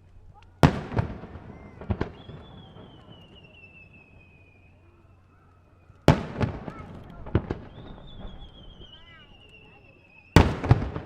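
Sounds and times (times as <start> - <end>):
falling firework whistle: 0.0 - 11.0
firework crackles: 0.0 - 11.0
firework pops: 0.0 - 11.0
loud firework burst: 0.6 - 11.0.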